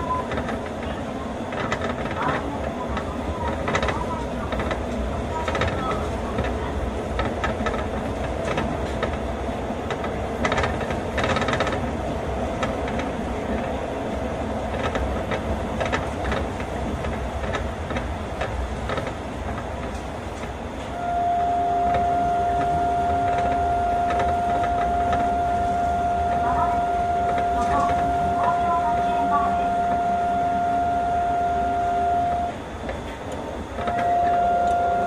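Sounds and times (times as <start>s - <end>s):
train ride rumble: 0.0s - 35.0s
steady high tone: 21.0s - 32.6s, 33.8s - 35.0s.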